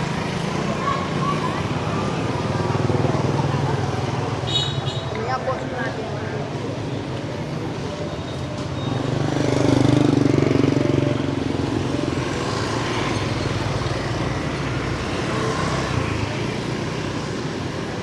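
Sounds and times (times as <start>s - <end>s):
street traffic hum: 0.0s - 18.0s
motorbike engine passing: 8.6s - 18.0s.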